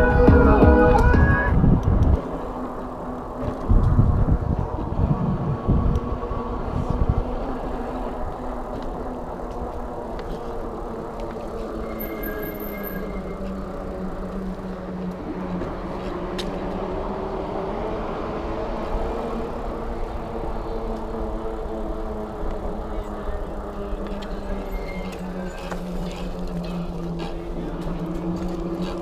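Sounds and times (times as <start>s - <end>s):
wind rushing over microphone: 0.0s - 11.9s.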